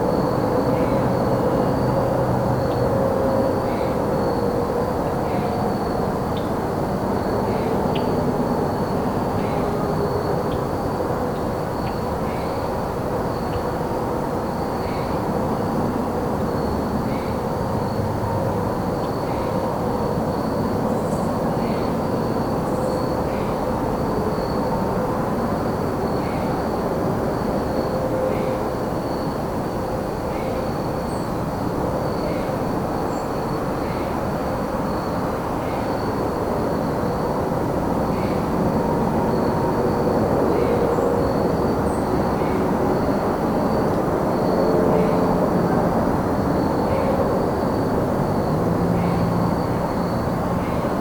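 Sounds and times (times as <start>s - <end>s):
crickets trilling: 0.0s - 51.0s
low traffic rumble: 31.0s - 51.0s.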